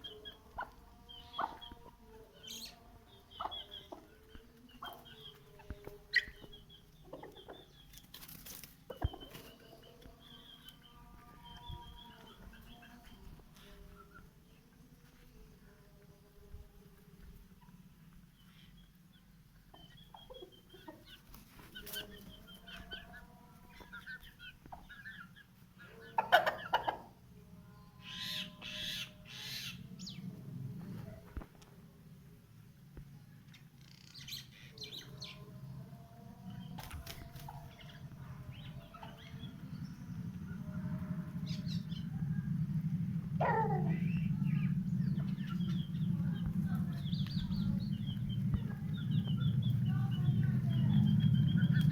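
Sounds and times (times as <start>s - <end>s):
chickens clucking and calling: 0.0s - 15.1s, 16.9s - 31.7s, 36.3s - 51.9s
steady low hum: 0.0s - 51.9s
wings flapping: 8.0s - 9.7s, 36.7s - 38.0s.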